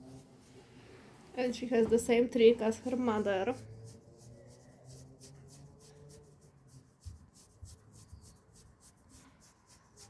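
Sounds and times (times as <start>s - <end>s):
hand stroking cat fur: 2.8s - 10.0s.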